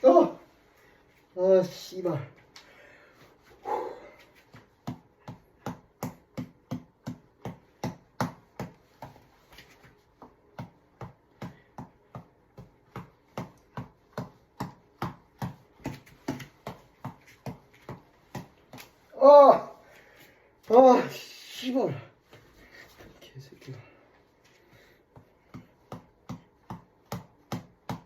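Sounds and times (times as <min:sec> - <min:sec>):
reflex ball being punched: 0:04.4 - 0:19.0, 0:25.1 - 0:28.0.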